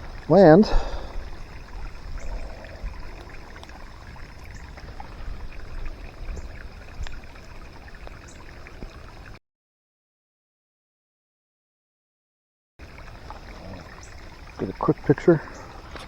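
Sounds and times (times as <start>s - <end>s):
ticks of raindrops: 0.0s - 9.4s, 12.8s - 16.0s
rain falling: 12.8s - 16.0s.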